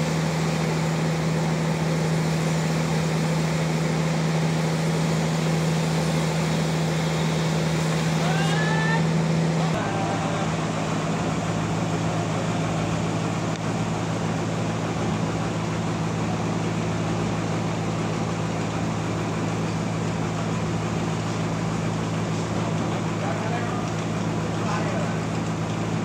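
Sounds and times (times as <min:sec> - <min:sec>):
sawmill machinery droning: 0:00.0 - 0:26.0.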